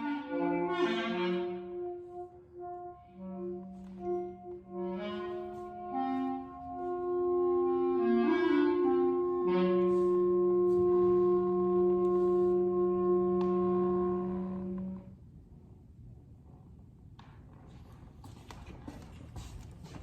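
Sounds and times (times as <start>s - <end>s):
clarinet and saxophones chord: 0.0s - 15.2s
faint room noise: 0.0s - 20.0s.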